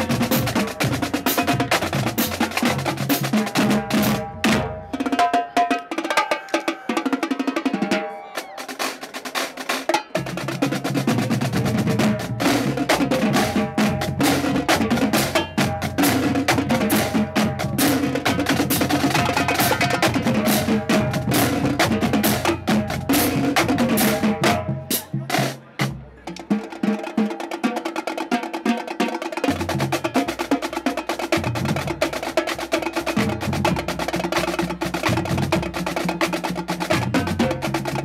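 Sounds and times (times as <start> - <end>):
pitched bass drums: 0.0 - 4.7, 10.2 - 26.0.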